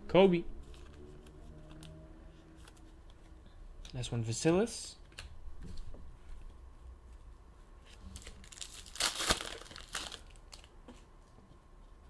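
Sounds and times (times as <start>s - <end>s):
foil wrapper crinkling and tearing: 8.0s - 10.8s.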